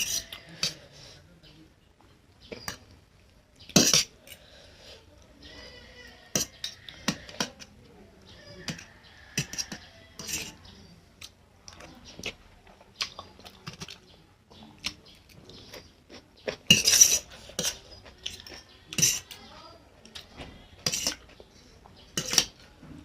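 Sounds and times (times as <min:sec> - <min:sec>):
utensil scraping a plate: 0:00.0 - 0:01.2, 0:05.8 - 0:07.7, 0:08.6 - 0:10.7, 0:16.6 - 0:19.4, 0:20.7 - 0:21.3, 0:22.1 - 0:22.6
mouth sounds of eating: 0:00.0 - 0:01.6, 0:02.3 - 0:23.0.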